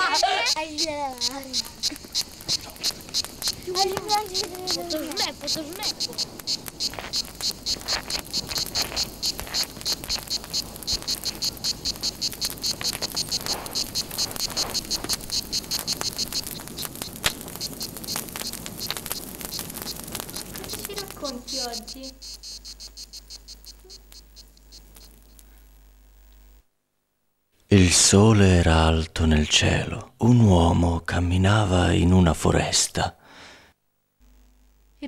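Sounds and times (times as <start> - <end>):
crickets chirping: 0.0 - 26.6.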